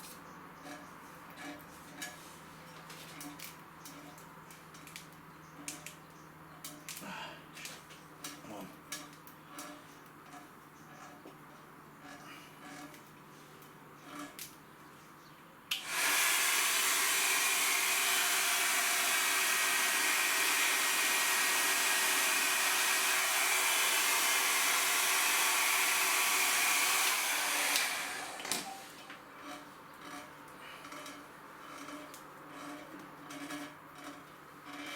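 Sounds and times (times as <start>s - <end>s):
electric blower running: 15.7s - 29.1s.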